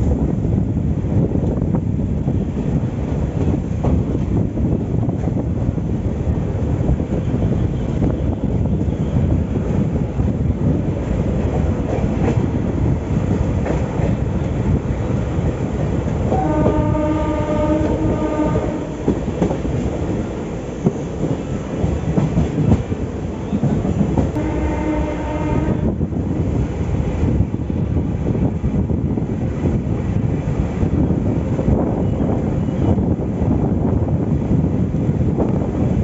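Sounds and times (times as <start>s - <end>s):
train rumbling on rails: 0.0s - 36.0s
train horn blasts: 16.3s - 19.2s, 24.3s - 26.0s.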